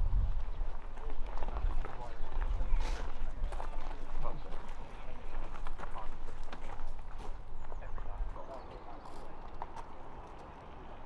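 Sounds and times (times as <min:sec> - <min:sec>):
wind rumble on microphone: 0:00.0 - 0:04.6
faint distant voices: 0:01.0 - 0:11.0.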